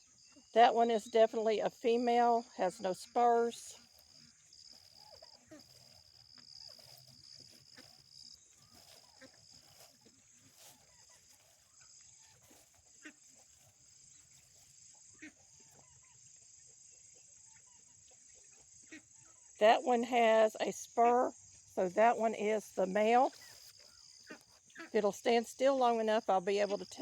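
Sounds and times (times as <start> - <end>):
insect drone: 0.0 - 27.0
turkeys calling: 2.6 - 16.3.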